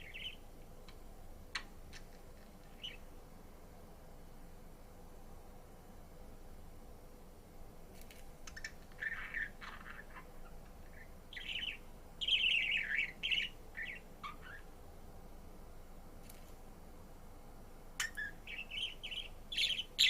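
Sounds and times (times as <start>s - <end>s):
budgerigar chirping and warbling: 8.6s - 14.7s, 18.0s - 20.0s.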